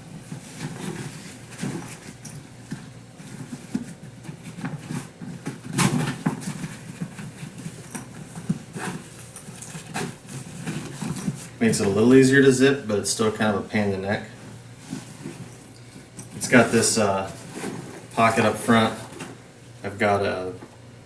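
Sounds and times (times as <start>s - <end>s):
nylon fabric rustling: 14.4s - 19.4s.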